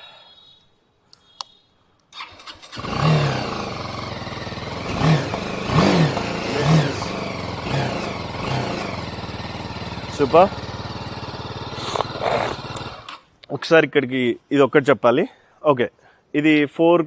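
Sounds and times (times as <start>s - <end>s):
engine revving: 2.2s - 13.2s
motorcycle engine starting and idling: 2.2s - 13.3s.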